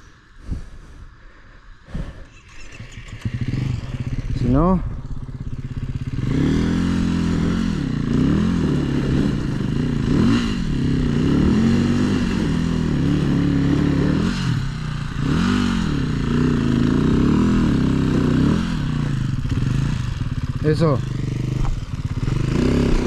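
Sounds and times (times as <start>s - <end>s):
dirt bike engine revving: 1.9s - 23.0s.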